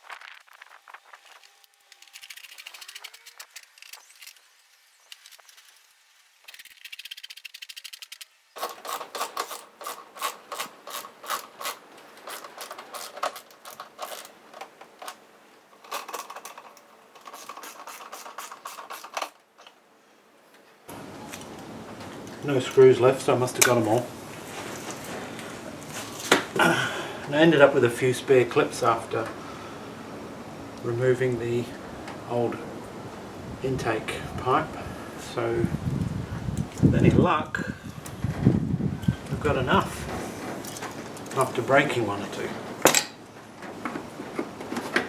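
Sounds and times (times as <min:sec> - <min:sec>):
scraping: 0:00.0 - 0:19.8
hand tool clicking driving screws: 0:01.7 - 0:04.5, 0:06.5 - 0:19.8.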